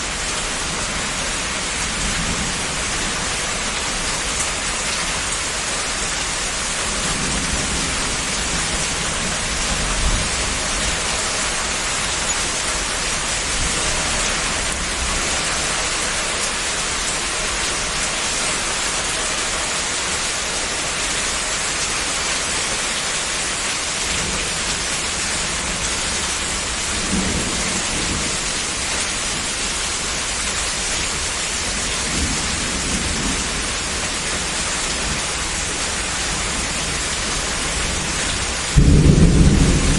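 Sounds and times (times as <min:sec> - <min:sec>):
heavy rain falling: 0:00.0 - 0:39.9
distant thunder rumbling: 0:38.6 - 0:39.9.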